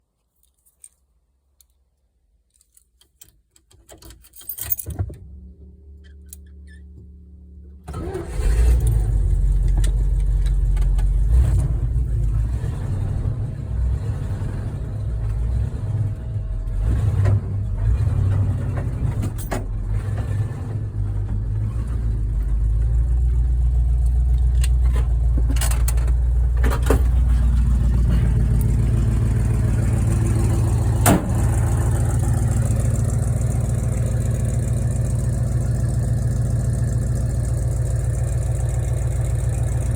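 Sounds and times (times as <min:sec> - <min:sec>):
keys clinking: 0:04.1 - 0:04.9
car engine starting and running: 0:04.8 - 0:39.9.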